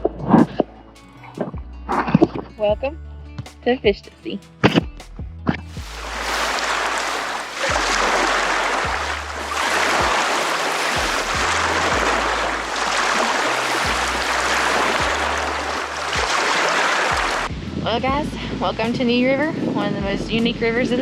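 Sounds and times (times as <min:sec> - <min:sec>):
low music bass line: 0:00.0 - 0:16.4, 0:17.1 - 0:21.0
rushing river water: 0:05.7 - 0:17.5.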